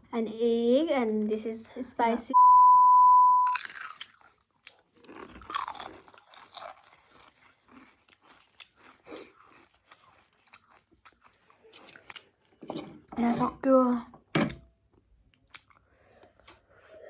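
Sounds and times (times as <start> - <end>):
electronic beep: 2.3 - 3.6
crunchy chewing: 3.5 - 12.7, 15.2 - 17.0.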